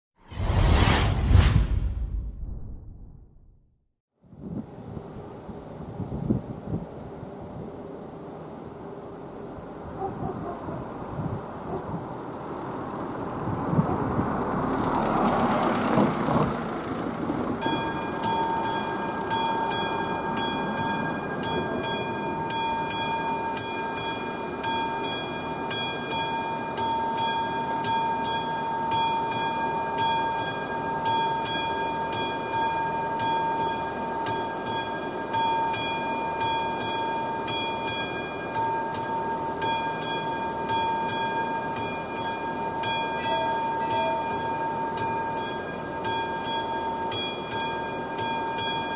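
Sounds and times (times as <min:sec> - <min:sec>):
rush of noise: 0:00.2 - 0:03.6
level crossing warning bell: 0:17.6 - 0:48.9.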